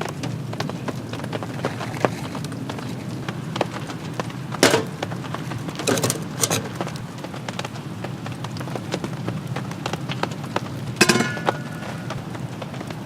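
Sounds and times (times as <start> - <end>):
rain pattering on a tarp: 0.0 - 13.0
sharp knocks: 11.0 - 12.2.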